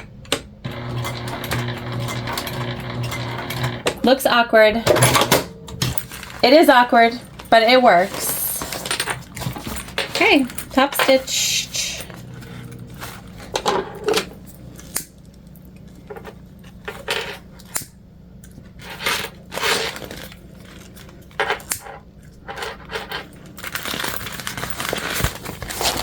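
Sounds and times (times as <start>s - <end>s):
vinyl bag rustling: 5.7s - 11.3s, 12.0s - 14.8s, 18.7s - 21.4s, 22.4s - 26.0s.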